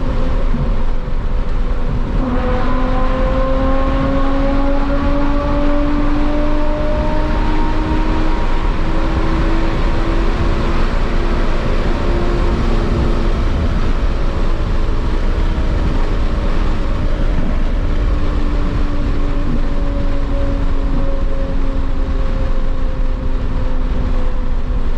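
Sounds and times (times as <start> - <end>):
car engine cruising: 0.0 - 24.9
road and wind rumble: 0.0 - 24.9.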